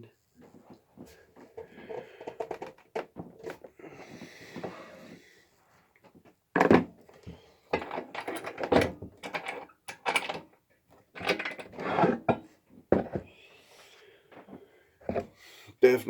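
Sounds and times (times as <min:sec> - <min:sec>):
objects knocking and clattering: 0:00.4 - 0:04.8, 0:06.0 - 0:13.3, 0:14.3 - 0:15.3.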